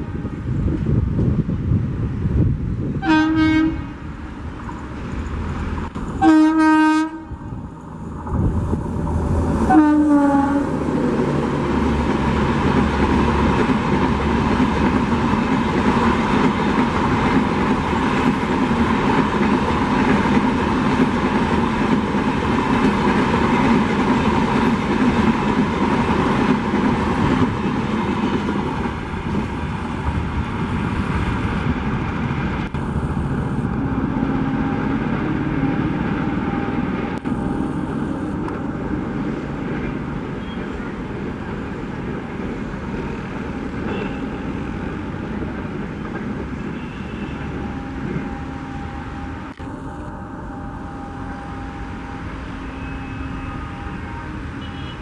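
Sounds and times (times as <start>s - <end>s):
train rumbling and clattering past: 0.0s - 55.0s
locomotive horn blasts: 3.0s - 4.0s, 6.2s - 7.4s, 9.7s - 10.8s, 43.9s - 44.6s, 46.7s - 55.0s.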